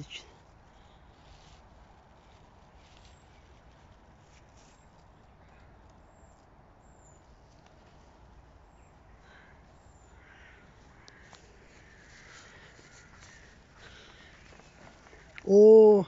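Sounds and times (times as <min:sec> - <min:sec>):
distant harsh bird calls: 0:08.6 - 0:16.0.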